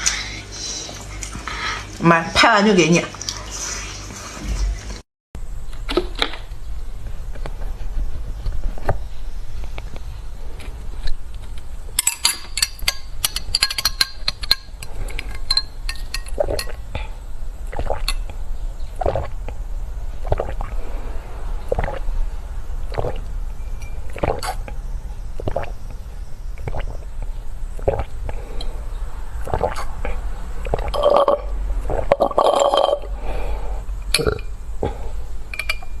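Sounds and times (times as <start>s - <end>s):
mouth and throat sound: 16.3s - 19.6s, 20.2s - 21.0s, 21.7s - 22.1s, 22.9s - 23.3s, 24.1s - 24.8s, 25.4s - 26.0s, 26.6s - 28.7s, 29.4s - 33.2s, 34.1s - 35.0s
chewing noises: 17.7s - 18.3s, 19.0s - 19.6s, 20.2s - 20.8s, 21.7s - 22.1s, 22.9s - 23.3s, 24.1s - 24.8s, 25.4s - 25.8s, 26.6s - 27.0s, 27.8s - 28.7s, 29.4s - 33.1s.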